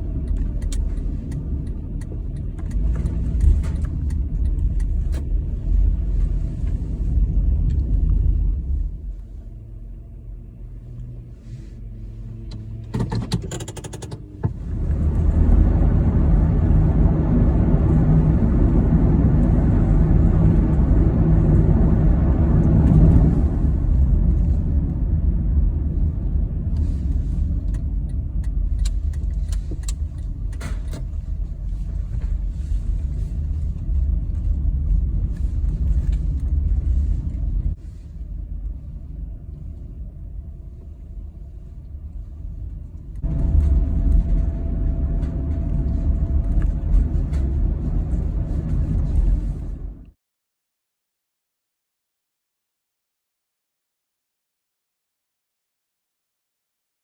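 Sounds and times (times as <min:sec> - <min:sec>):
car rumbling on the move: 0:00.0 - 0:50.2
clicks and rattles: 0:13.0 - 0:14.2.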